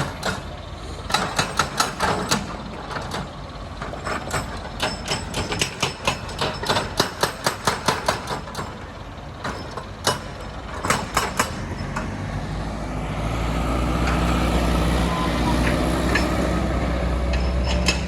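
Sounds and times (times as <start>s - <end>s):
low engine rumble: 8.7s - 18.0s.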